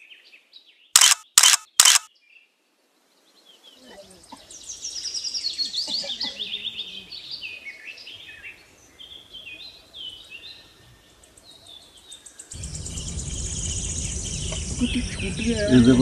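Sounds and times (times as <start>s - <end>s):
wild birds chirping: 2.1s - 16.0s
rushing background noise: 12.5s - 16.0s
rapid high ticking: 12.6s - 15.8s.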